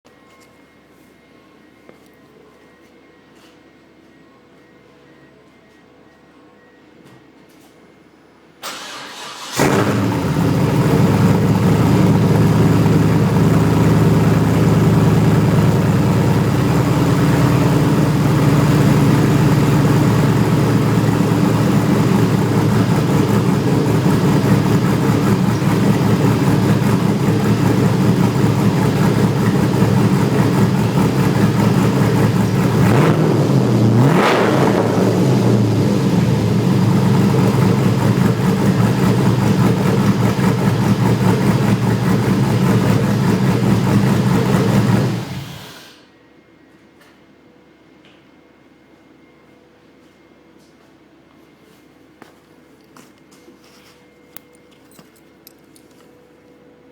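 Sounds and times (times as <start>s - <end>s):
engine starting: 8.6s - 10.7s, 44.8s - 46.1s
engine throttle blips: 8.6s - 46.0s
engine idling: 8.7s - 45.8s.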